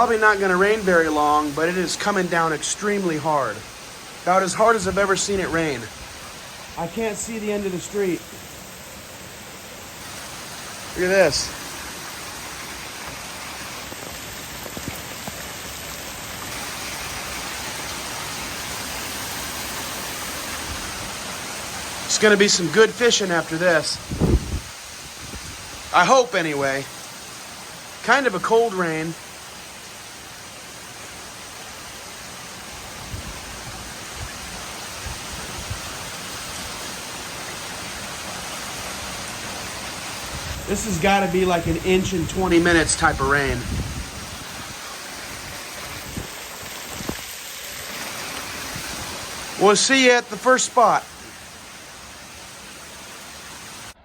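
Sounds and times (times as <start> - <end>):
heavy rain pouring: 0.0 - 54.0
faint ticks of raindrops: 11.3 - 16.6
short low thumps: 24.1 - 24.7.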